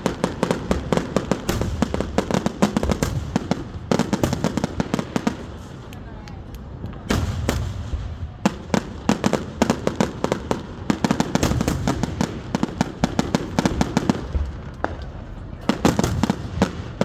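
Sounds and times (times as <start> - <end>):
fireworks cracks and pops: 0.0 - 17.0.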